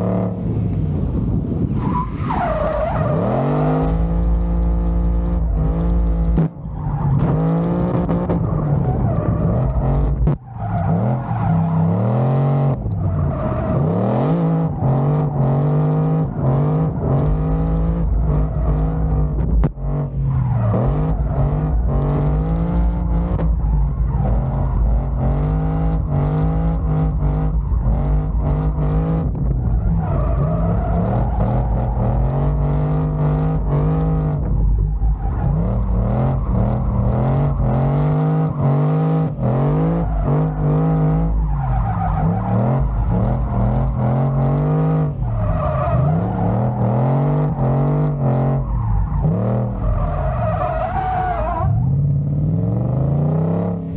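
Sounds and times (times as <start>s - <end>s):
car engine revving: 0.0s - 53.9s.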